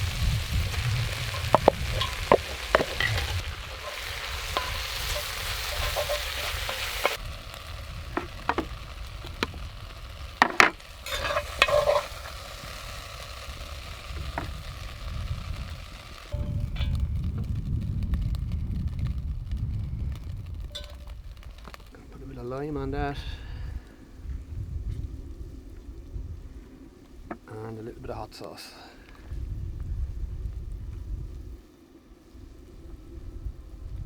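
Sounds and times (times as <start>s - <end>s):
utensil scraping a pot: 0.0s - 14.8s
food sizzling in a pot: 0.0s - 22.0s.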